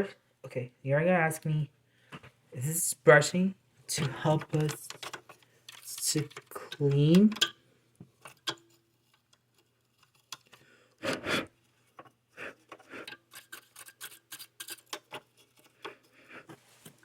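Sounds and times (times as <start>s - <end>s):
small clicks and knocks: 4.0s - 10.6s
rubbing and scraping strokes: 11.1s - 17.0s.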